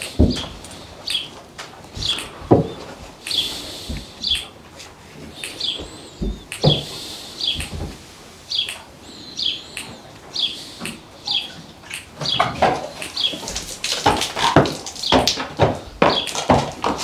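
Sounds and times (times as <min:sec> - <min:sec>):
bird chirping: 0:00.0 - 0:04.6, 0:05.2 - 0:13.9, 0:14.5 - 0:16.7
horse stepping in stall: 0:12.2 - 0:17.0.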